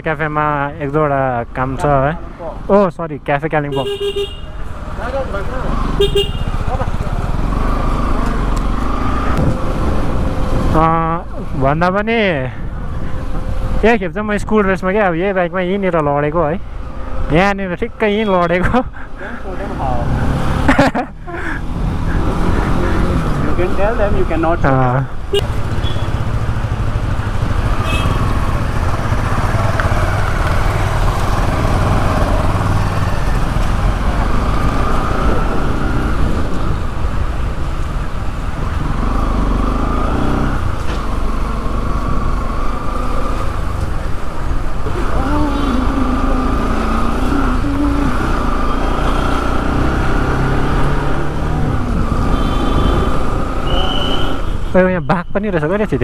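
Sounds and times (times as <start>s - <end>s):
road and wind noise: 0.0s - 56.0s
motorcycle engine running: 25.4s - 34.7s.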